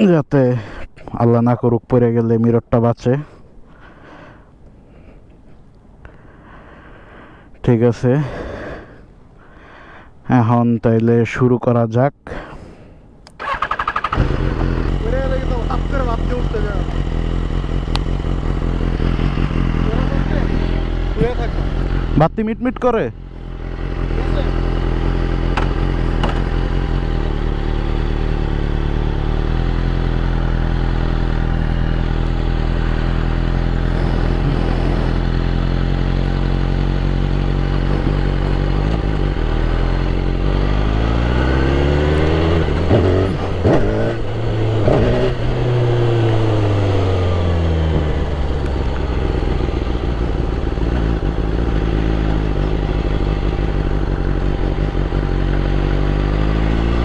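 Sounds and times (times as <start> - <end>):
motorcycle engine revving: 13.4 - 57.0.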